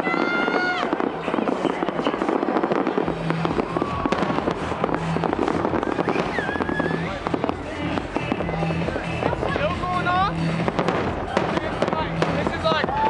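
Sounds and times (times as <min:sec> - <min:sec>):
fireworks shells bursting: 0:00.0 - 0:09.5
rapid crackling and popping: 0:00.0 - 0:13.0.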